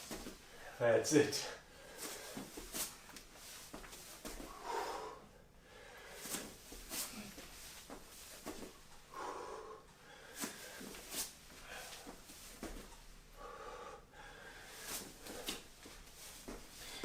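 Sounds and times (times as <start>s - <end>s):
hands and feet tapping floor: 0.0s - 0.4s, 2.0s - 4.5s, 6.2s - 8.8s, 10.4s - 13.0s, 14.9s - 17.0s
person breathing hard: 1.6s - 2.9s, 4.3s - 17.0s.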